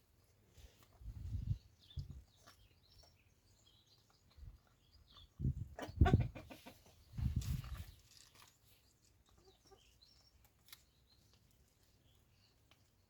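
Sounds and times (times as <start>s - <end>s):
chickens clucking: 4.3s - 7.7s, 9.2s - 10.0s.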